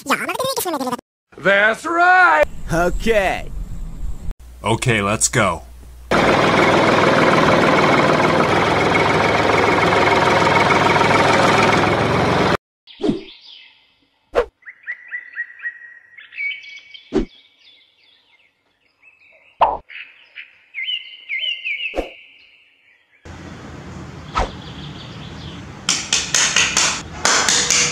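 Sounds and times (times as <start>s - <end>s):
tractor engine running: 6.0s - 12.6s, 23.3s - 27.9s
birds chirping: 12.9s - 27.2s.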